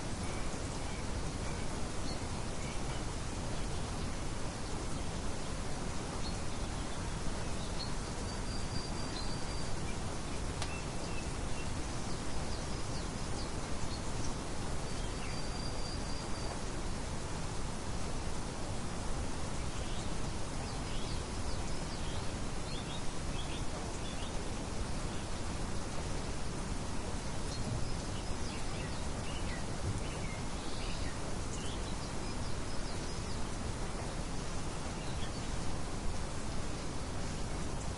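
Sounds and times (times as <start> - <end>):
outdoor hiss: 0.0 - 37.9
birds chirping: 27.0 - 35.8.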